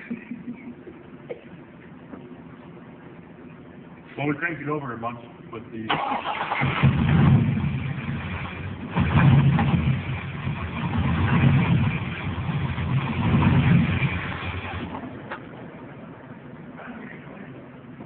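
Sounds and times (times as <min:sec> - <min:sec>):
car engine revving with knock: 0:06.8 - 0:15.4.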